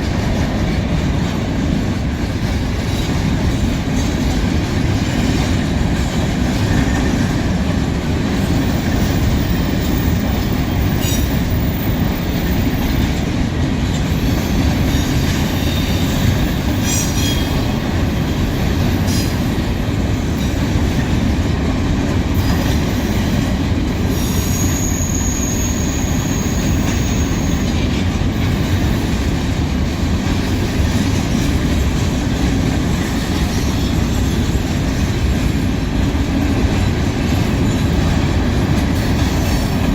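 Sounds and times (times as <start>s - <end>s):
freight train wheels rumbling: 0.0s - 39.9s
high wheel squeal: 24.1s - 27.7s.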